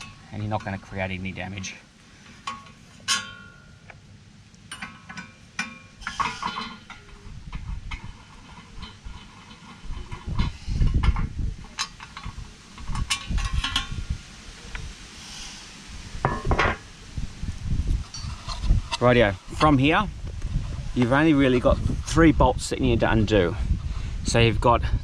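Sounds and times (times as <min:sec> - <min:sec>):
low rumbling clatter: 0:04.7 - 0:14.8.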